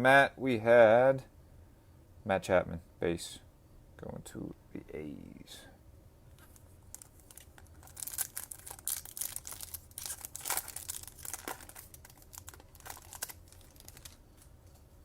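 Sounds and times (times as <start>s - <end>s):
foil wrapper tearing and crinkling: 6.9s - 14.2s.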